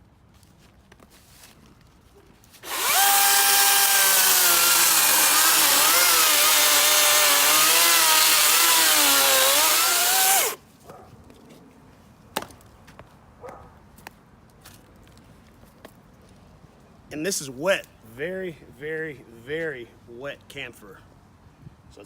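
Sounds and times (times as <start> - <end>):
chainsaw cutting wood: 2.6 - 10.6.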